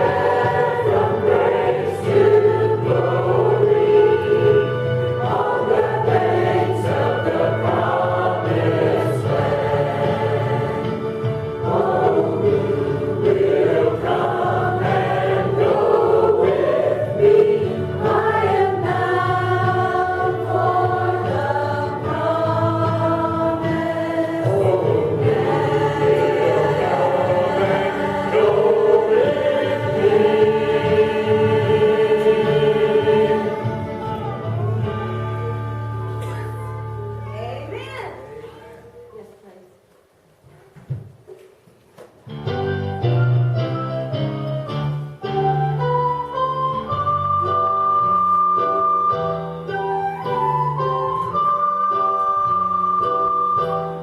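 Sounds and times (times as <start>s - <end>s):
church choir singing gospel: 0.0s - 36.9s.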